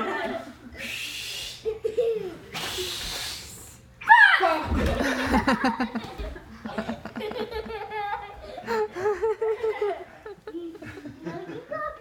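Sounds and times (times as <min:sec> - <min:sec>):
people laughing together: 0:00.0 - 0:00.8, 0:04.6 - 0:12.0.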